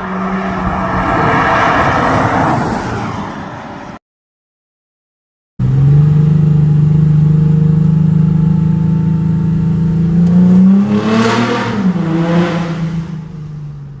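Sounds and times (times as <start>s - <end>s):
car engine through straight-piped exhaust: 5.6s - 14.0s.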